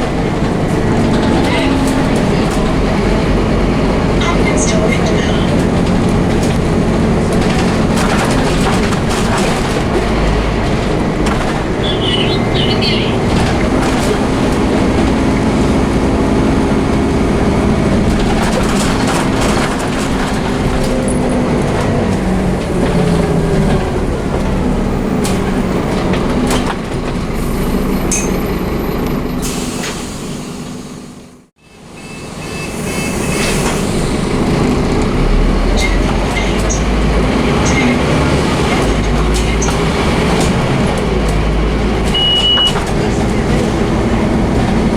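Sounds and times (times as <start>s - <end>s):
bus diesel engine accelerating: 0.0s - 44.9s
clicks and rattles: 5.6s - 11.8s, 17.8s - 22.2s.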